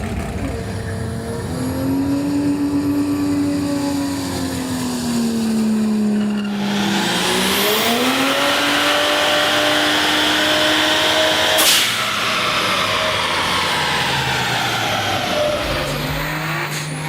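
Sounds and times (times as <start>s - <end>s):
car engine revving: 0.0s - 17.0s
rushing hiss of boost: 6.5s - 8.8s, 11.6s - 17.0s
short loud burst: 11.6s - 12.3s.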